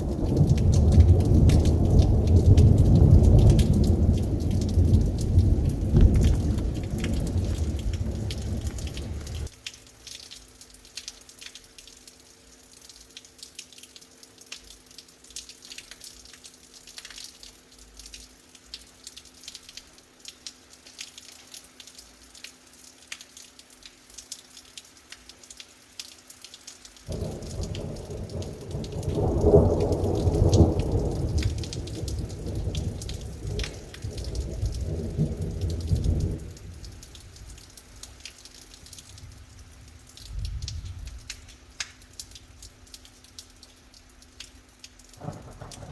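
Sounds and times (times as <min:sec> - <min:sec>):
thunderclap and rumble: 0:00.0 - 0:09.5, 0:27.1 - 0:37.5, 0:40.2 - 0:41.4, 0:45.2 - 0:45.9
rain drops falling: 0:00.0 - 0:45.9.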